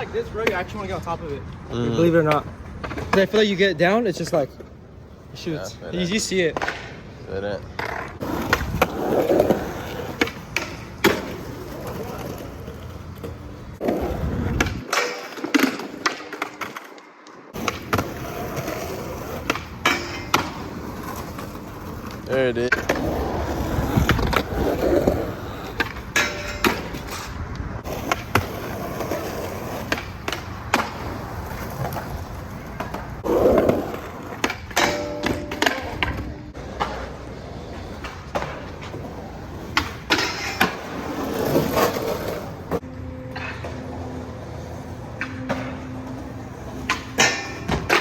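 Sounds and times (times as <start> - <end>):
skateboard wheels rolling on pavement: 0.0 - 48.0
skateboard clacking on landing: 6.4 - 7.0, 29.8 - 42.0.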